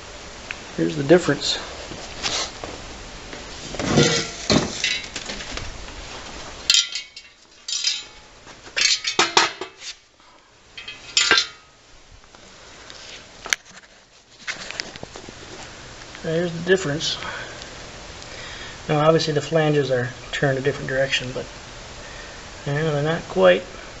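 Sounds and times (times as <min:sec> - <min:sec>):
metal mufflers clanking: 0:03.8 - 0:05.2, 0:06.7 - 0:09.6, 0:10.8 - 0:11.8.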